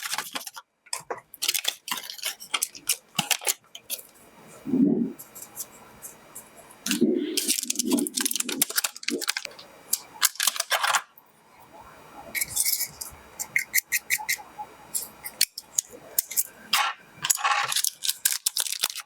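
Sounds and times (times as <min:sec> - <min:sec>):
packaging rustling and crinkling: 0:00.0 - 0:04.4, 0:06.4 - 0:11.0, 0:16.2 - 0:19.0.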